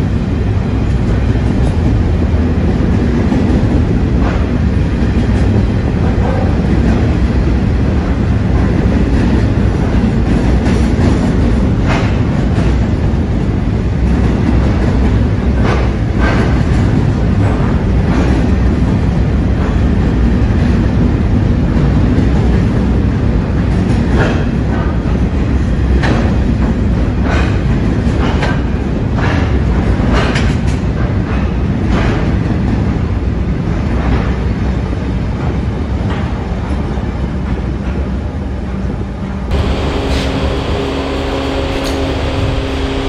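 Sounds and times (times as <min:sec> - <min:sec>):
freight wagons rumbling past: 0:39.5 - 0:43.0.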